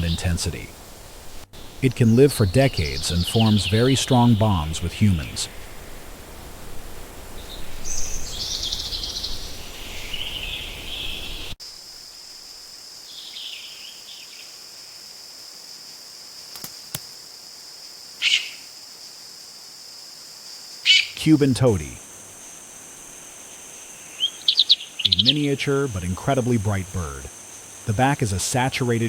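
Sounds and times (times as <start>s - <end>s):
harsh raspy bird calls: 0.0s - 0.7s, 1.6s - 5.8s, 18.2s - 18.7s, 20.8s - 22.1s, 23.5s - 27.3s
high insect drone: 0.0s - 29.0s
short bird calls: 18.2s - 18.7s, 20.8s - 21.2s, 24.0s - 25.6s.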